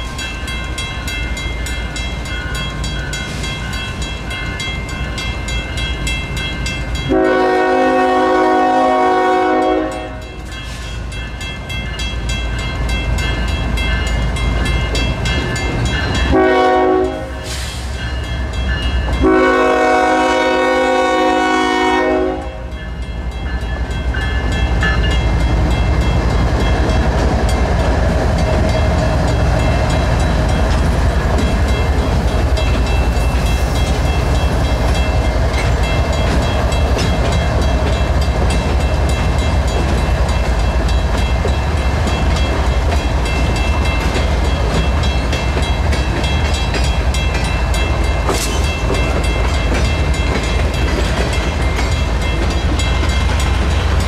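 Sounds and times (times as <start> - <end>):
crossing bell ringing: 0.0 - 54.0
train rumble and rail clatter: 0.0 - 54.0
locomotive air horn: 7.1 - 10.2, 16.3 - 17.7, 19.2 - 22.7.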